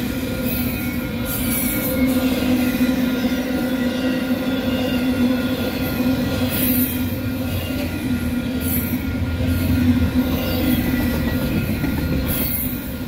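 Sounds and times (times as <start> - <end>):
metallic squeal: 0.0 - 13.0
train wheels rumbling on rail: 0.0 - 13.0.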